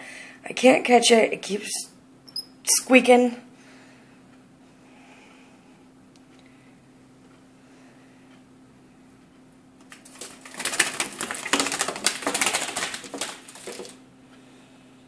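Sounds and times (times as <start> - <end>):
bird wings flapping: 9.9 - 14.0.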